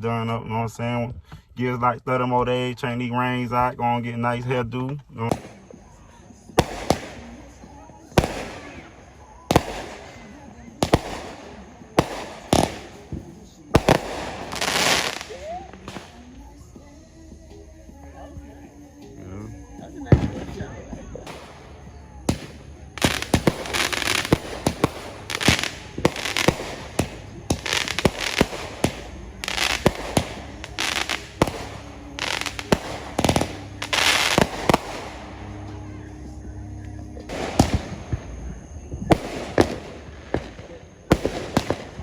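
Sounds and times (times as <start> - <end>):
fireworks and firecrackers banging: 4.4 - 42.0.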